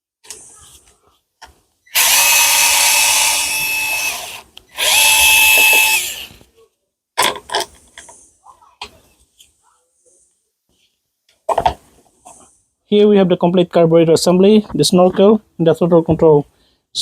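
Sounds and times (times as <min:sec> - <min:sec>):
cordless drill whine: 0:01.9 - 0:06.4.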